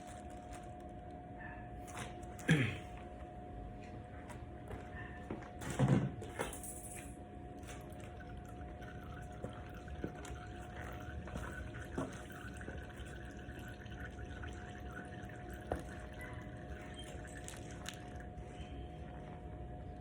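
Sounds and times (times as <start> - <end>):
oil dripping into a pan: 7.6 - 18.3.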